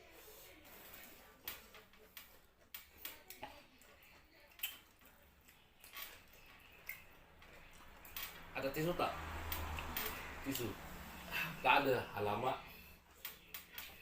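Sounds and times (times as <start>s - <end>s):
soft chewing clicks and smacks: 1.4s - 8.5s, 9.4s - 10.7s.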